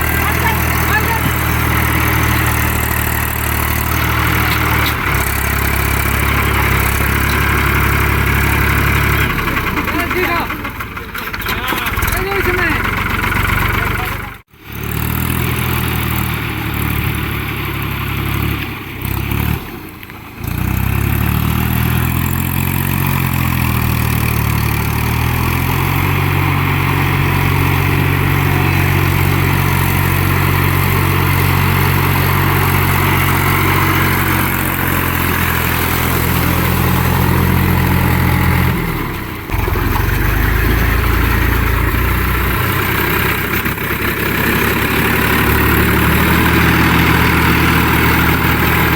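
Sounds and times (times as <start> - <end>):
tractor diesel engine revving: 0.0 - 48.9.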